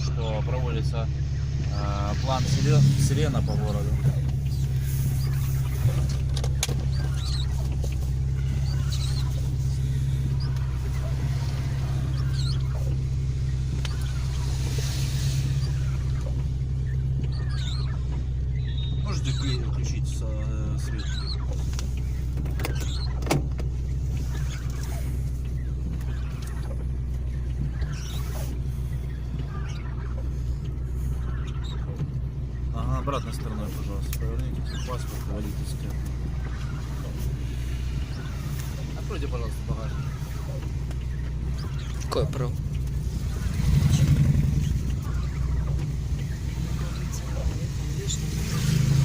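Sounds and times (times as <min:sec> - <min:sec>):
car engine idling: 0:00.0 - 0:49.0
faint high chirps: 0:06.8 - 0:20.1.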